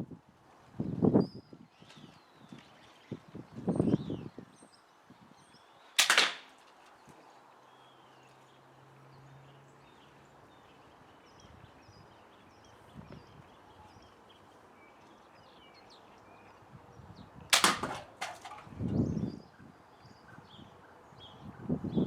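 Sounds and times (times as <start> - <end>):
slingshot firing sharp crack: 6.0 - 6.7, 17.5 - 18.7.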